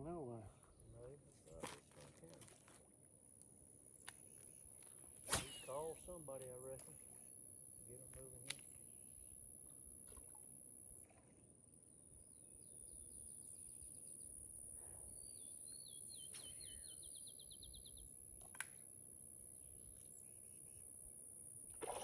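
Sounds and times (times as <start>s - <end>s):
songbird trilling: 15.4s - 18.1s.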